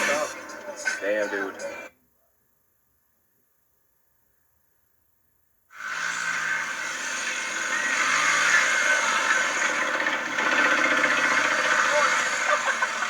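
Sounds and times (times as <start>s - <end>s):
motorcycle engine running: 5.8s - 13.0s.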